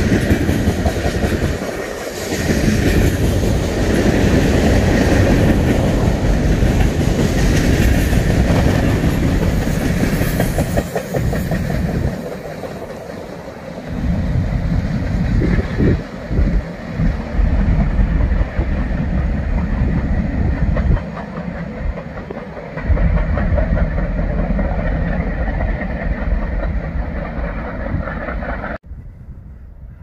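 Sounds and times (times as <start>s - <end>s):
freight cars rumbling on rails: 0.0s - 29.3s.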